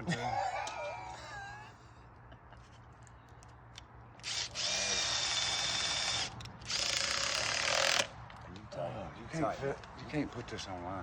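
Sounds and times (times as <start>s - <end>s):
power drill whining: 4.2s - 8.1s.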